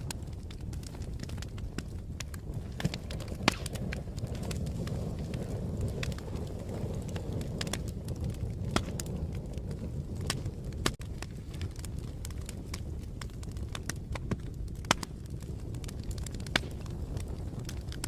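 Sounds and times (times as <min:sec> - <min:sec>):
low rumble of burning: 0:00.0 - 0:18.0
wood fire crackling: 0:00.0 - 0:18.0.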